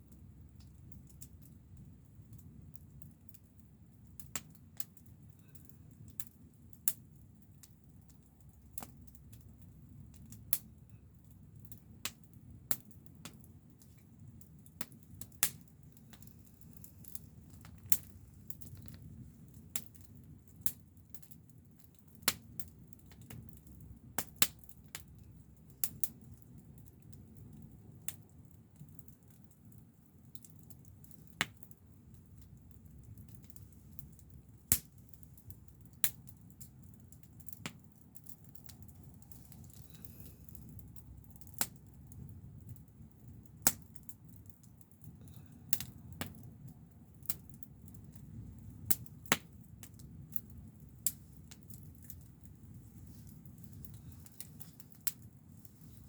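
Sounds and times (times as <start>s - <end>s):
low steady rumble: 0.0s - 28.8s, 30.8s - 56.0s
wood fire crackling and popping: 0.0s - 56.0s.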